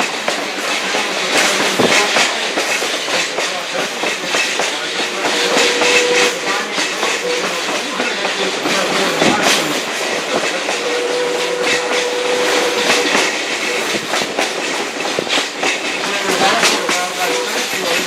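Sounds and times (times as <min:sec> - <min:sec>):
train coach rumbling on track: 0:00.0 - 0:18.0
wheels clicking over rail joints: 0:00.0 - 0:18.0.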